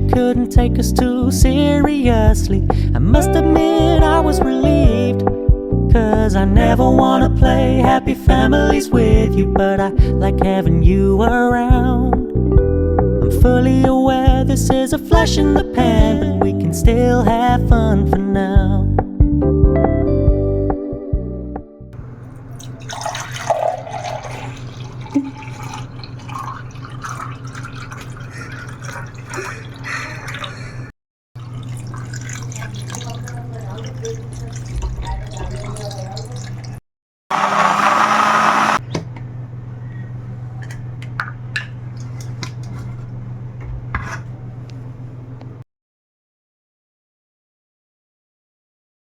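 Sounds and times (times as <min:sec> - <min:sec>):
liquid pouring and dripping: 0:22.3 - 0:30.5, 0:31.4 - 0:36.8.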